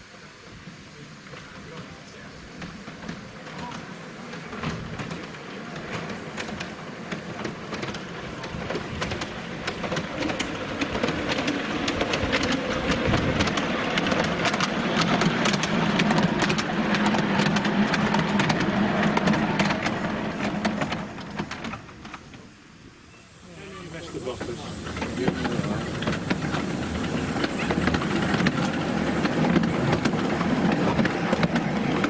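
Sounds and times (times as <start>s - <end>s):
train clattering and rattling: 0.0s - 22.9s, 23.6s - 32.0s.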